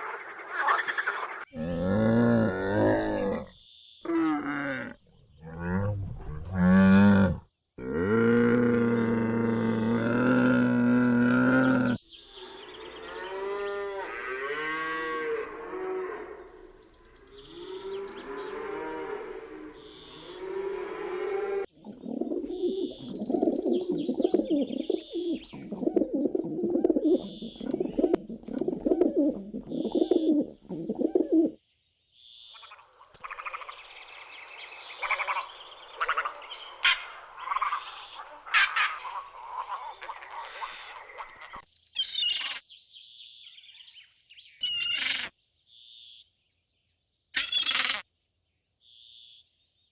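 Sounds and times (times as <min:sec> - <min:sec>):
bird calls and cooing: 0:00.0 - 0:07.2, 0:10.5 - 0:31.6, 0:34.7 - 0:42.7, 0:43.7 - 0:45.3
cow mooing: 0:01.6 - 0:03.5, 0:04.2 - 0:16.5, 0:17.5 - 0:21.7.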